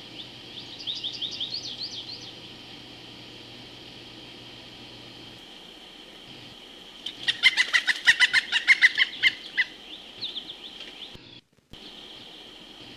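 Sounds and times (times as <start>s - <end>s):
woodpecker call: 7.1s - 11.2s.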